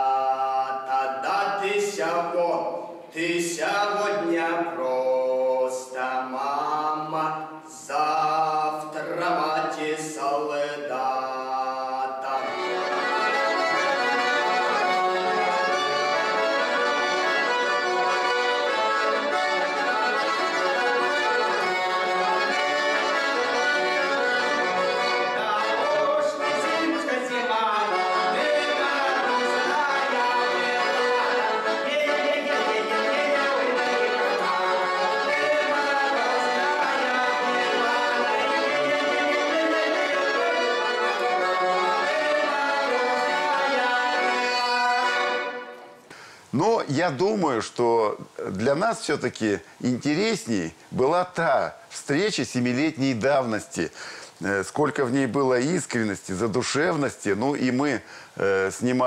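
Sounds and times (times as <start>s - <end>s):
button accordion playing: 12.2s - 46.0s.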